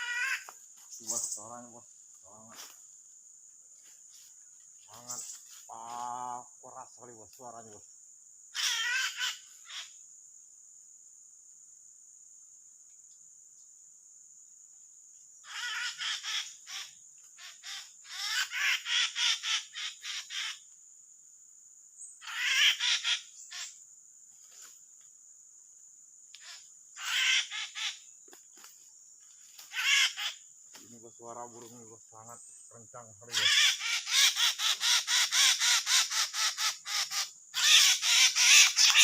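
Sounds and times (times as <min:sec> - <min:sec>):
drongo harsh calls: 0:00.0 - 0:01.5, 0:08.5 - 0:10.0, 0:15.4 - 0:20.6, 0:22.2 - 0:23.8, 0:26.4 - 0:28.1, 0:29.6 - 0:32.0, 0:32.8 - 0:39.0
high insect drone: 0:00.0 - 0:39.0.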